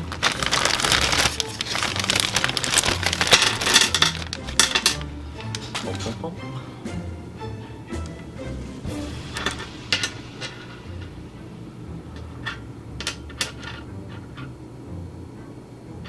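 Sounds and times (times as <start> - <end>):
metal pieces clinking: 2.3 - 5.1.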